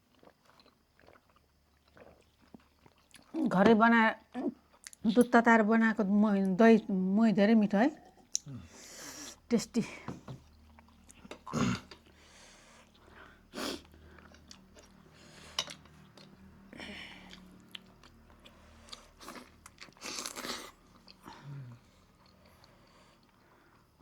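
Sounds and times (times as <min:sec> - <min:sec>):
person chewing and crunching food: 0:00.0 - 0:03.4, 0:10.4 - 0:24.0.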